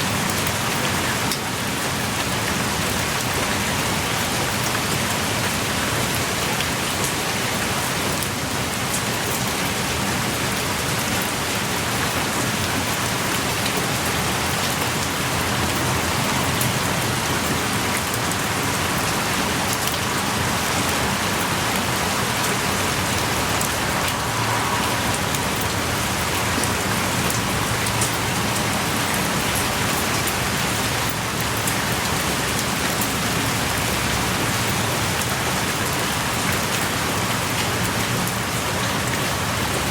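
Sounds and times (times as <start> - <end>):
heavy rain pouring: 0.0 - 39.9
raindrops ticking: 11.2 - 39.9.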